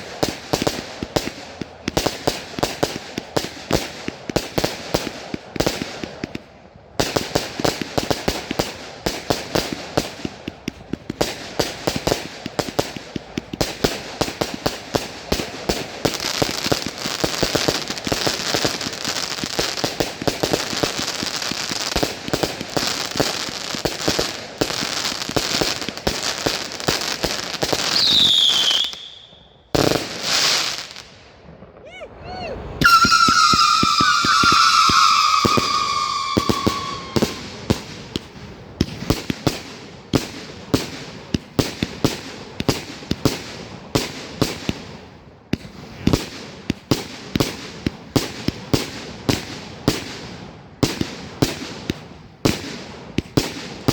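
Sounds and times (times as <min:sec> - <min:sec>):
fireworks bangs and crackles: 0:00.0 - 0:53.9
firework whistle gliding down: 0:27.9 - 0:29.4, 0:31.8 - 0:37.6.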